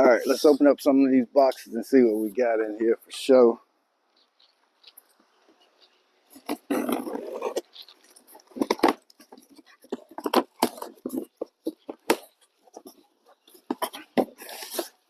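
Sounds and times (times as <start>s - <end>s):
cardboard rustling: 6.2s - 15.0s.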